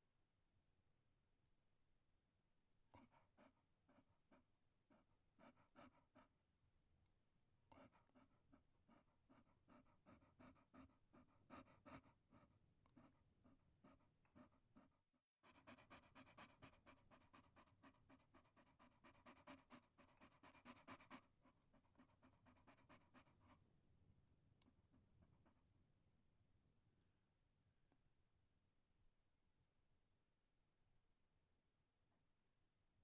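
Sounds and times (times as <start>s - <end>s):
dog panting: 3.0s - 6.4s, 7.7s - 23.8s.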